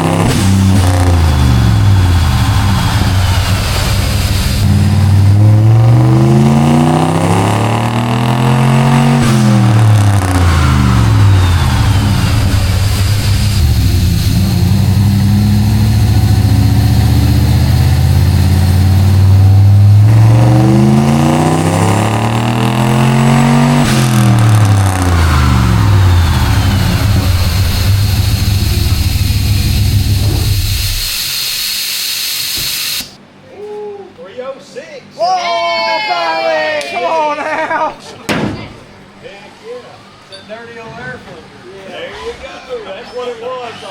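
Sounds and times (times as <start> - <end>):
truck engine revving under load: 0.0 - 33.2.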